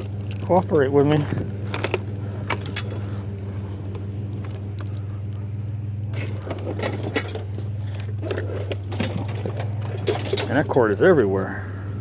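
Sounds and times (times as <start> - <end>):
truck engine idling: 0.0 - 12.0
scrap metal knocks and rattles: 6.2 - 10.9.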